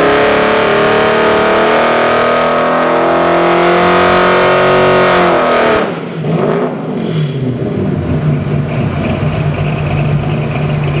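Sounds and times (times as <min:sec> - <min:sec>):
engine revs falling to idle: 0:06.9 - 0:11.0.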